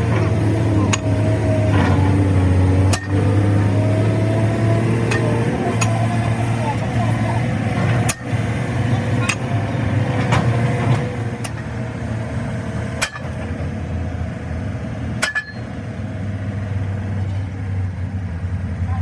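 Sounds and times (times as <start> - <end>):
engine humming: 0.0 - 19.0
sharp metallic knocks: 2.8 - 3.6, 5.0 - 6.0, 13.0 - 13.5, 15.2 - 15.8.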